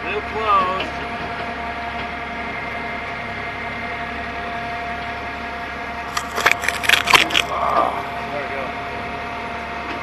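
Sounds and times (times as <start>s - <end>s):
diesel engine running: 0.0s - 10.0s
sharp clicks and rattles: 6.1s - 7.5s.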